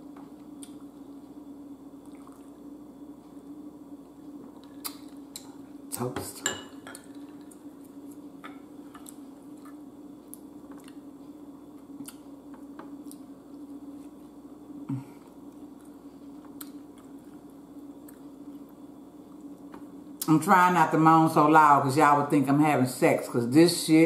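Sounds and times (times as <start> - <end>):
steady low hum: 0.0 - 24.0
wet mouth clicks and smacks: 4.7 - 5.5
person humming mmm: 14.8 - 15.3.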